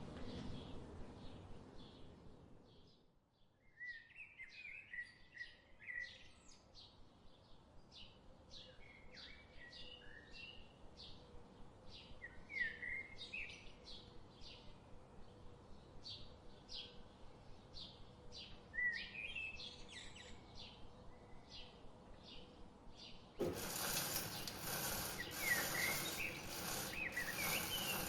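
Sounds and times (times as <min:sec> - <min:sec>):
small birds chirping: 0:23.4 - 0:28.0.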